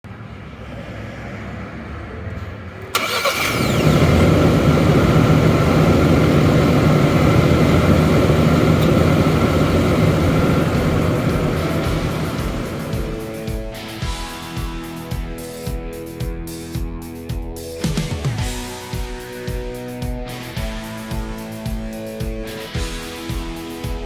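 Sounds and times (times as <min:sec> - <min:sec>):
car engine starting and idling: 0:02.3 - 0:14.2.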